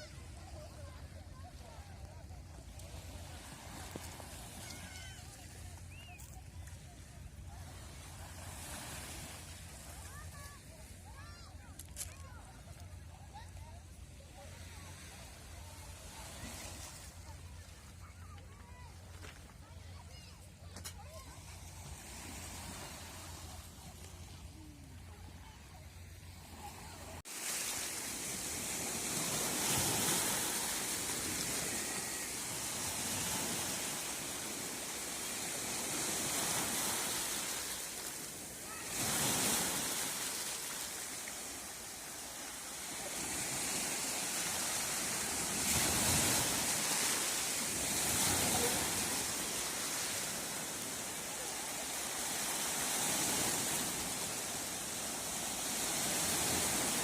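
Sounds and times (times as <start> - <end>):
sea waves breaking ashore: 0.0 - 57.0.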